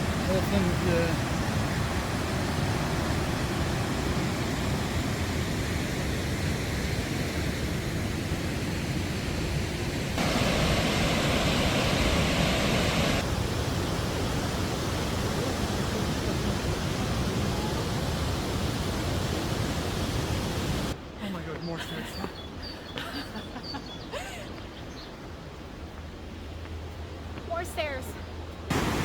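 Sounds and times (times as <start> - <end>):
waterfall rushing: 0.0 - 5.7, 10.2 - 21.0, 28.7 - 29.0.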